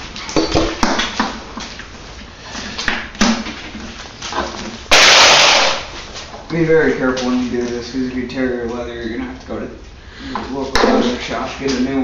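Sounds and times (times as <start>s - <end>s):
loud rush of hiss: 4.9s - 6.0s.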